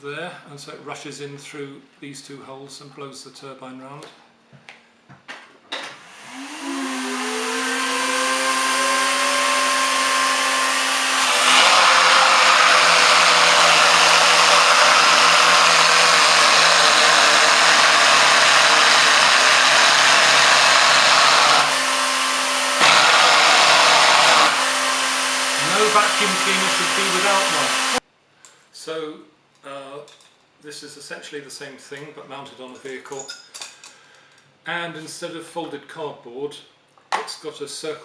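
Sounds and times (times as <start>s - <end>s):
vacuum cleaner running: 6.0s - 28.0s.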